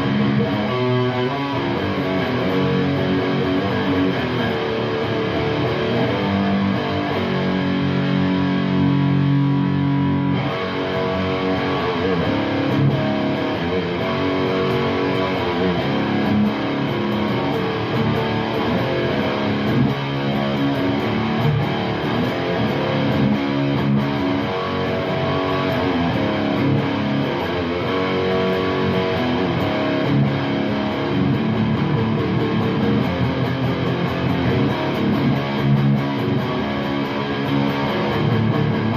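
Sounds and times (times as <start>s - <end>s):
distorted electric guitar chords: 0.0s - 38.9s.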